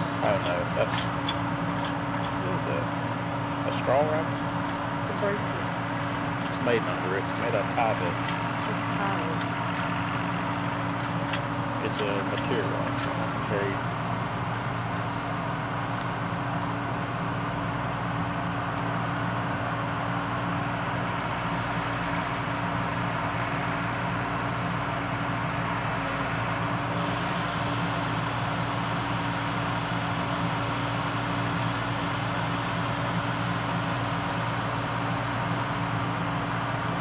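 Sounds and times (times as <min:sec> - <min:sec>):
diesel engine running under load: 0:00.0 - 0:37.0.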